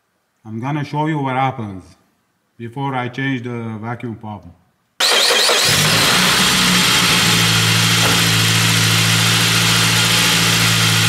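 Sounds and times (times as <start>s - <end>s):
car engine idling: 5.0s - 11.0s.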